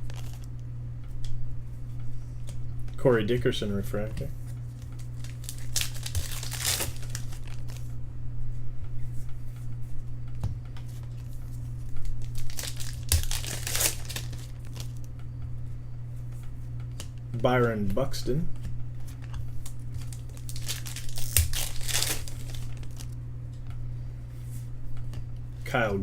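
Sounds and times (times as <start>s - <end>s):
card pack wrapper tearing and crinkling: 0.0s - 0.5s, 5.0s - 7.8s, 12.0s - 15.0s, 19.6s - 23.2s
steady low hum: 0.0s - 26.0s.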